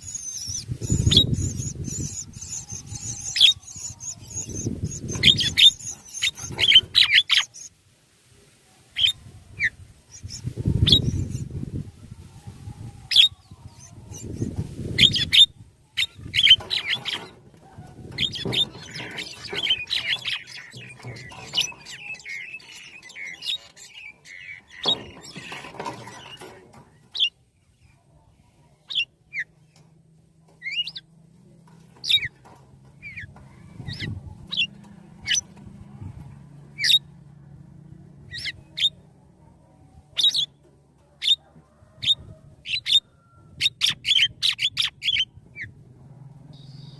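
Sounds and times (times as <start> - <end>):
birds squawking and chirping: 0.0 - 7.8, 8.9 - 46.9.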